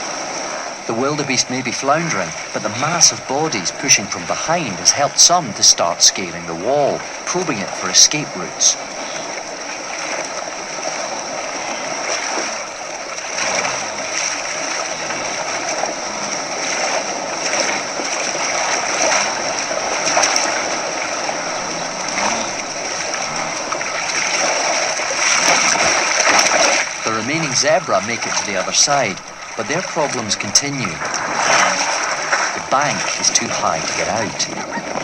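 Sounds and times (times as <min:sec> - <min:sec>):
river water splashing and churning: 0:00.0 - 0:35.0
steady high hiss: 0:26.9 - 0:34.6.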